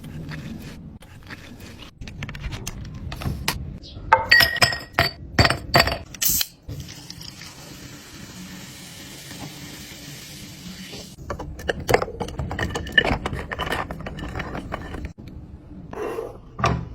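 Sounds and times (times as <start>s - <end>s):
glass containers knocking: 4.1s - 6.1s
glass clinking: 4.2s - 6.0s.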